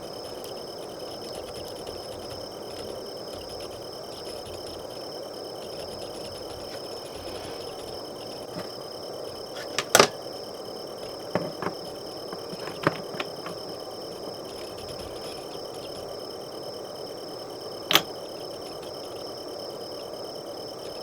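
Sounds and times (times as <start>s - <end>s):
crickets and insects chirping: 0.0s - 21.0s
clicks and taps of handling: 9.6s - 10.2s, 11.0s - 13.8s, 17.9s - 18.1s.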